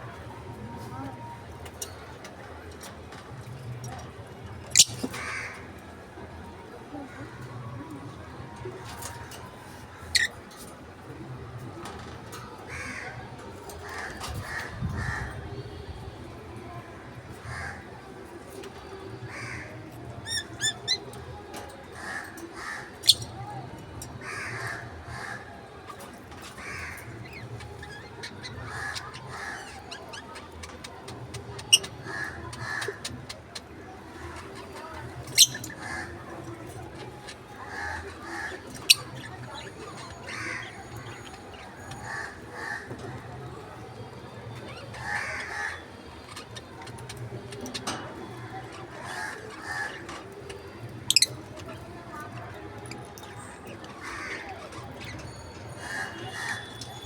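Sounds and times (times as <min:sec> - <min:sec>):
parrots chattering softly: 0:04.7 - 0:05.5, 0:24.2 - 0:43.3, 0:44.6 - 0:57.0.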